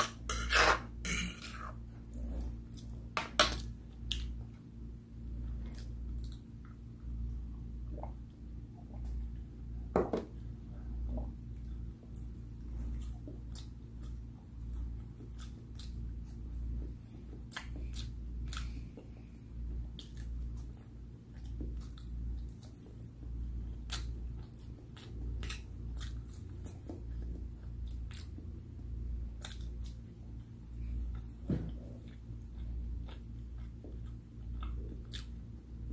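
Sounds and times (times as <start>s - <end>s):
person chewing with mouth clicks: 5.4s - 7.4s, 11.1s - 35.9s.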